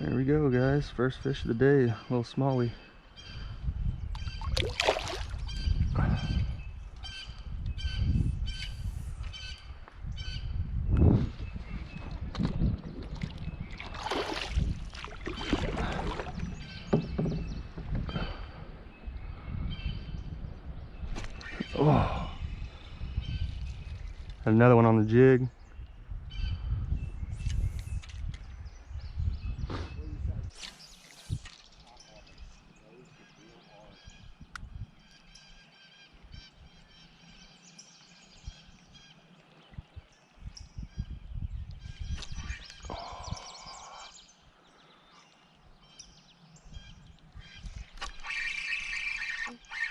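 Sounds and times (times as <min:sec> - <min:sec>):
birds calling: 0:00.0 - 0:49.9
water splashing against kayak: 0:12.2 - 0:18.0
low thumps and rumble: 0:14.7 - 0:18.5
knock on kayak hull: 0:16.9 - 0:18.0.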